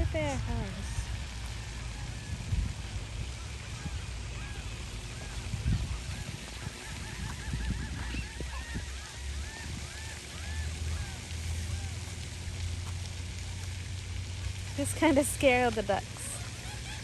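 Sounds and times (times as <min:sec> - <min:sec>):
waterfowl honking: 0:00.0 - 0:12.8, 0:14.7 - 0:17.0.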